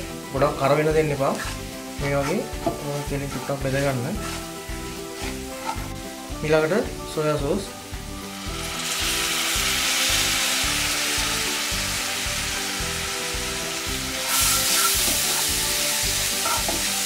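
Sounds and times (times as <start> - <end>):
food sizzling in hot oil: 0.0 - 17.0
wooden spatula stirring: 1.3 - 5.9.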